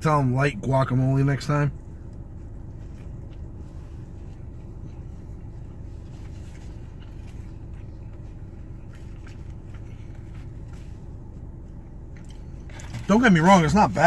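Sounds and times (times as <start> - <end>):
car low rumble: 0.0 - 14.0
faint chewing: 1.9 - 13.1.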